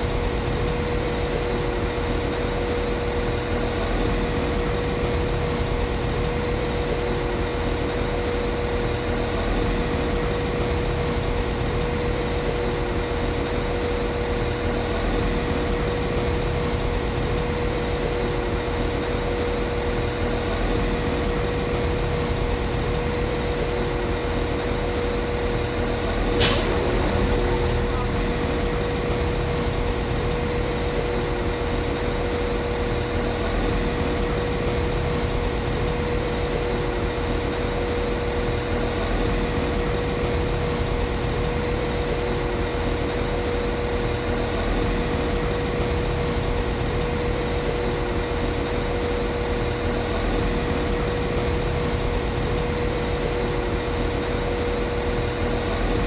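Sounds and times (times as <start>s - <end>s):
sharp click: 26.4s - 26.8s.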